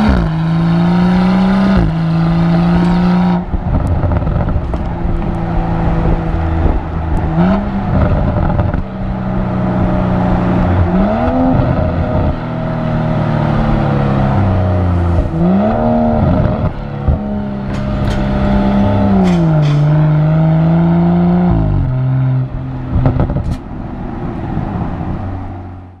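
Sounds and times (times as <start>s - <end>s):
car engine and exhaust revving: 0.0s - 26.0s
exhaust cracks: 2.7s - 8.9s.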